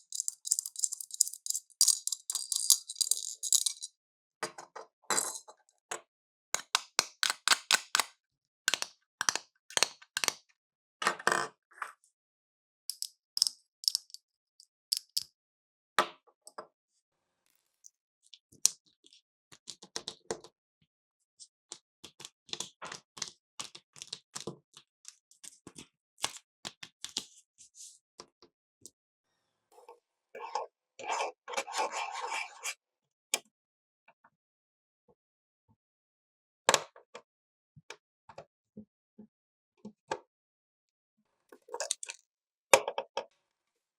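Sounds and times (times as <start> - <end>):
plastic toy pieces clicking: 0.0 - 3.9, 12.9 - 14.2.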